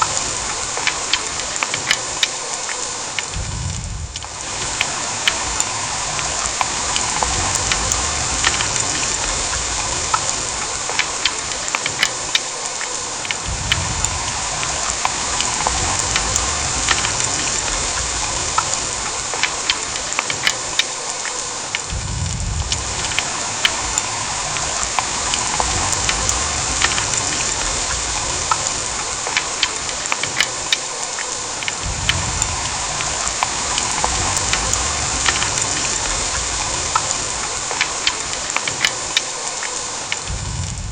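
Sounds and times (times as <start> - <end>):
heavy rain hissing: 0.0 - 40.9
sharp raindrop ticks: 0.0 - 40.9
low rumble: 3.3 - 4.8, 13.4 - 19.2, 21.9 - 29.0, 31.8 - 37.4, 40.3 - 40.9.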